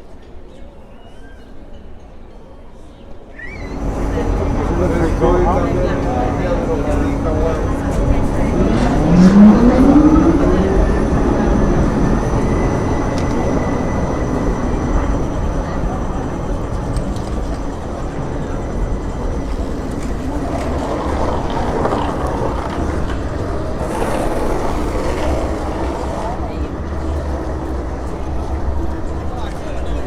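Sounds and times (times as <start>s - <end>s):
train rolling rumble: 3.6s - 30.0s
electric motor whine rising: 8.2s - 14.2s.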